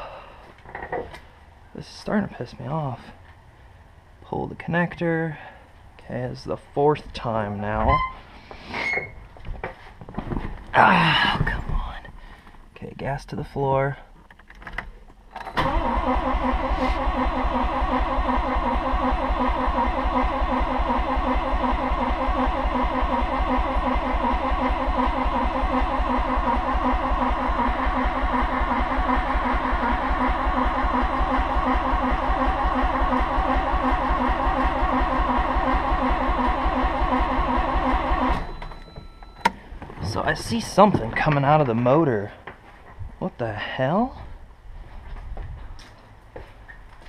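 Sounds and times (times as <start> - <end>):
engine cranking by starter: 15.3 - 40.6.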